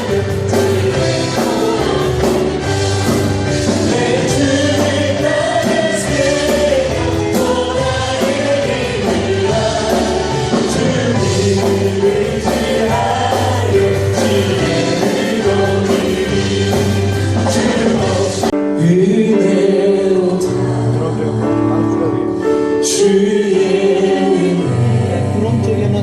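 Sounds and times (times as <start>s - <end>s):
band with bass and percussion: 0.0s - 18.9s
group singing praise song: 0.0s - 22.2s, 22.8s - 25.7s.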